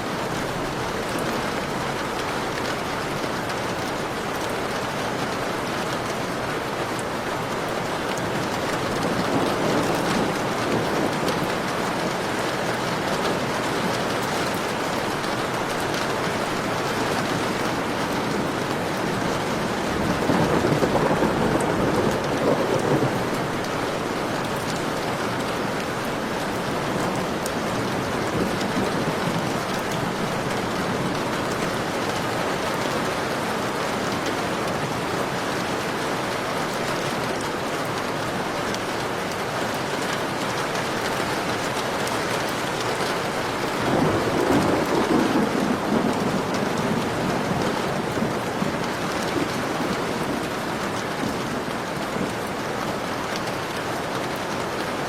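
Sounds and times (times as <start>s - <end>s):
heavy rain falling: 0.0s - 55.0s
thunder rumble: 8.4s - 25.5s, 43.4s - 52.3s.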